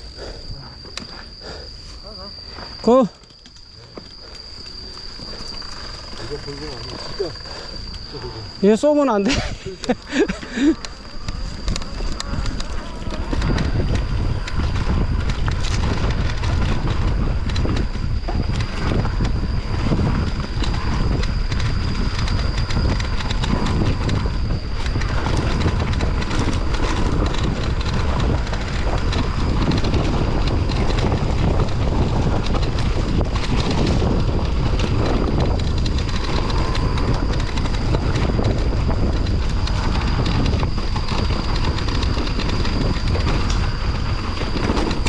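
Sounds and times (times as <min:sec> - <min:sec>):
bike tyres rumbling over dirt: 0:00.0 - 0:45.0
wind buffeting microphone: 0:00.0 - 0:45.0
bike clicks and knocks: 0:08.8 - 0:19.4.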